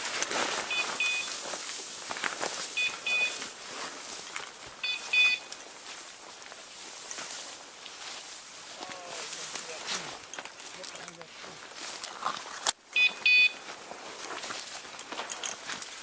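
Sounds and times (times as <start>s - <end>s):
footsteps through brush: 0.0s - 16.0s
beeper collar double beeps: 0.6s - 1.4s, 2.8s - 3.4s, 4.8s - 5.5s, 12.9s - 13.6s.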